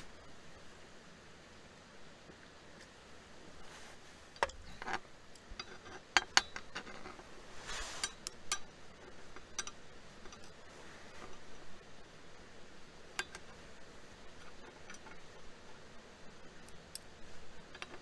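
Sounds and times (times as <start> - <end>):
scraping rustle: 3.4 - 6.0, 6.6 - 8.3.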